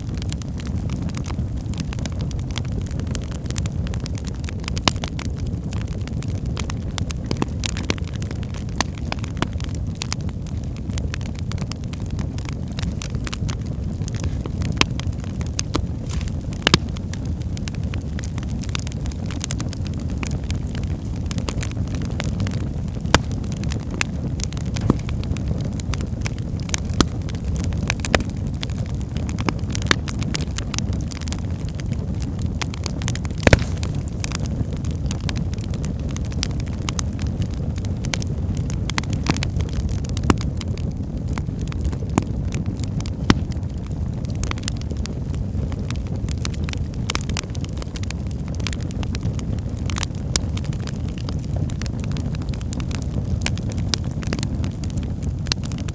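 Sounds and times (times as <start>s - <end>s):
fireplace fire crackling: 0.0s - 55.9s.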